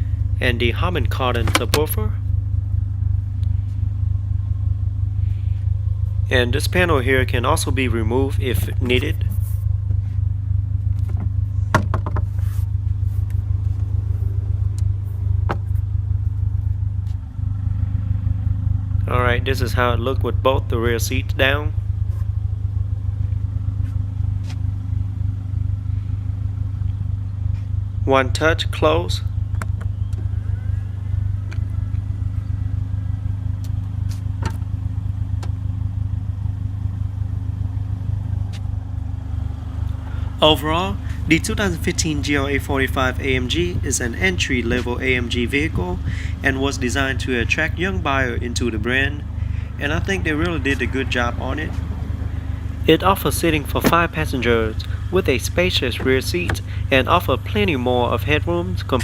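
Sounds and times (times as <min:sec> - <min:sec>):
car engine idling: 0:00.0 - 0:59.0
steady low rumble: 0:00.0 - 0:59.0
car panels clicking and knocking: 0:01.4 - 0:01.8, 0:11.0 - 0:12.4, 0:15.4 - 0:15.8, 0:34.1 - 0:34.7.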